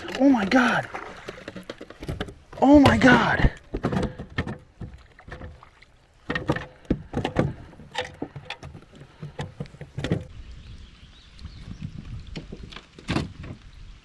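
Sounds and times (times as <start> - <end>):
knocks and thumps on kayak: 0.0 - 10.3.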